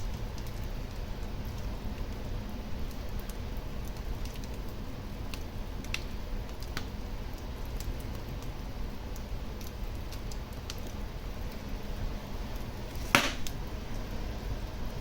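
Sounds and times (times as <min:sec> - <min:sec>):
fire crackling in a fireplace: 0:00.0 - 0:15.0.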